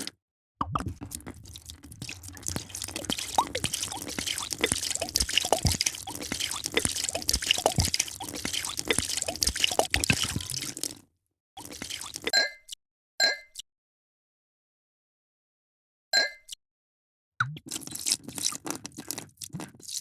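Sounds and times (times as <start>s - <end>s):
drink pouring into a glass: 0.7s - 11.0s, 11.6s - 12.3s, 17.7s - 20.0s.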